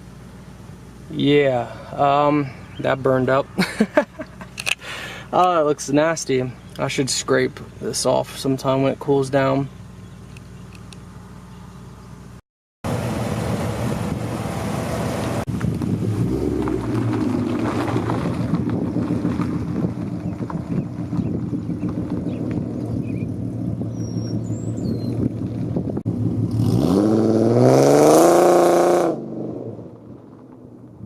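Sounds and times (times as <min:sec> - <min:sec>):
loud car exhaust: 0:12.8 - 0:31.0.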